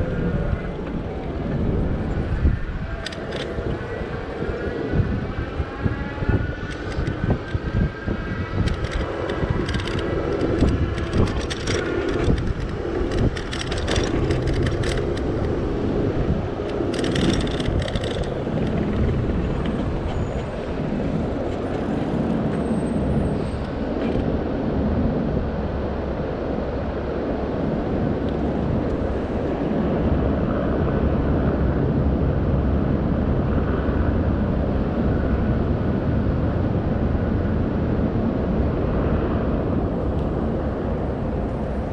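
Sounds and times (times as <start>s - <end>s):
road and traffic noise: 0.0s - 41.9s
bike clicks and rattles: 0.3s - 4.8s, 6.4s - 24.3s.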